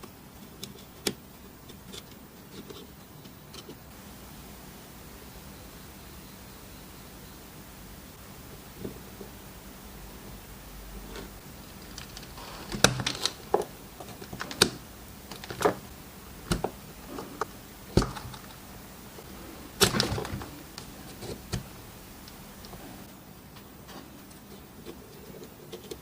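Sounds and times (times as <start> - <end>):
small hard parts clicking and knocking: 11.1 - 18.7, 19.7 - 22.9.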